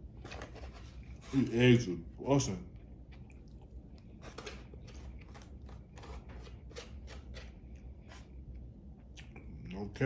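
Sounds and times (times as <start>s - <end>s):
chewing with mouth clicks: 2.8s - 5.6s.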